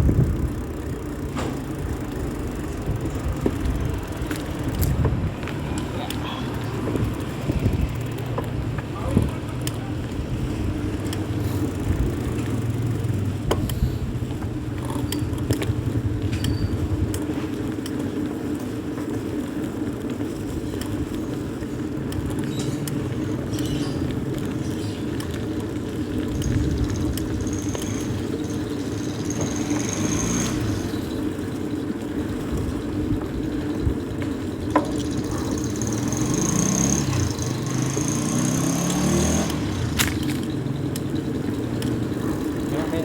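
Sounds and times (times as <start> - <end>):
bicycle riding rumble: 0.0 - 43.0
small rattles and clicks: 0.0 - 43.0.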